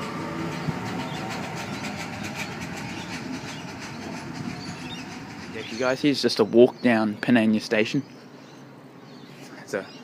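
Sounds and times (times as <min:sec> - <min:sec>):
train wheels on rails: 0:00.0 - 0:06.7.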